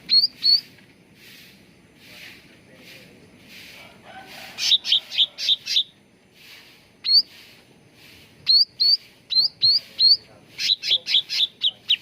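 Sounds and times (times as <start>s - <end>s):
rising whistled bird notes: 0.0s - 0.7s, 7.0s - 7.4s, 8.4s - 12.0s
harsh chattering bird notes: 0.0s - 12.0s.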